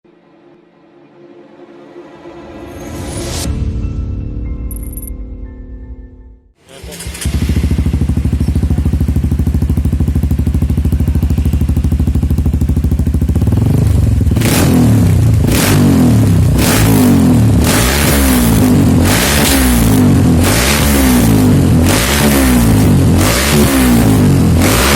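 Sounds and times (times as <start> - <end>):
motorcycle engine idling and revving: 6.8 - 24.9.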